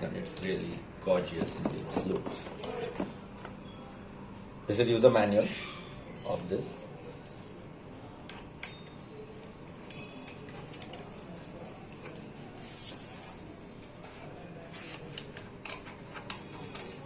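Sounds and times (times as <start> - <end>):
paper rustle: 9.3 - 17.0.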